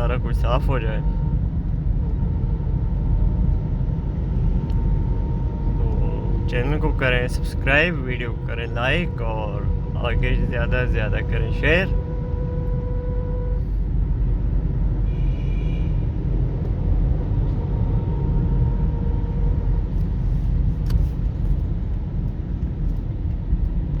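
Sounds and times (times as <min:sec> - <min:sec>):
road traffic rumble: 0:00.0 - 0:24.0
short high horn tone: 0:09.0 - 0:13.9, 0:15.1 - 0:16.1.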